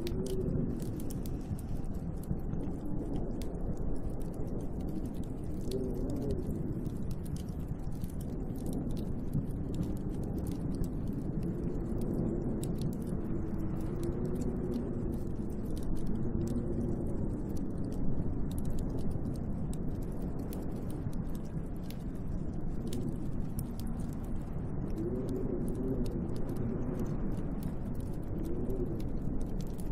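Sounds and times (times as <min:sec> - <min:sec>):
faint scattered ticks: 0:00.0 - 0:29.9
snowstorm wind against window: 0:22.5 - 0:29.9.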